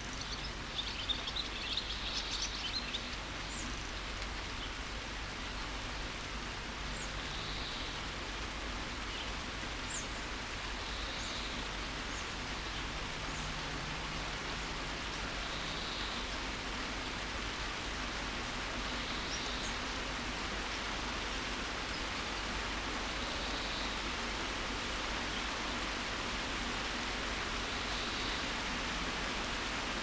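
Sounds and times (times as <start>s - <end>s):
birds chirping: 0.0s - 4.9s
steady rain: 0.0s - 30.0s.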